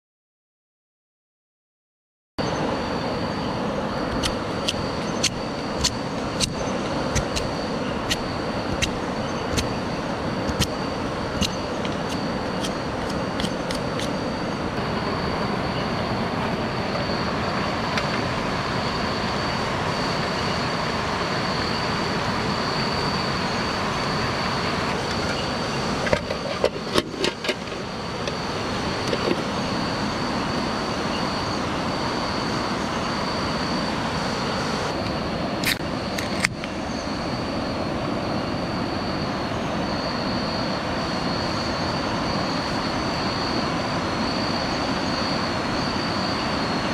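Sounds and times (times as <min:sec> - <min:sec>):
sharp clicks: 0:04.1 - 0:07.5, 0:10.5 - 0:10.8, 0:11.4 - 0:14.2.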